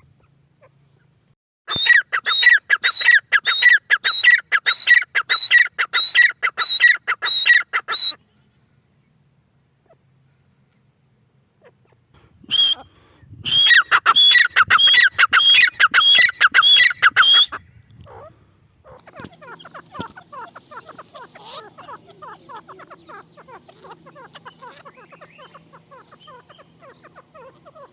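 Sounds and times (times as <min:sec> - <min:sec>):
shrill bird calls: 0:00.2 - 0:08.5, 0:11.6 - 0:27.9
low steady hum: 0:07.9 - 0:27.9
rapid bird chatter: 0:13.7 - 0:27.9.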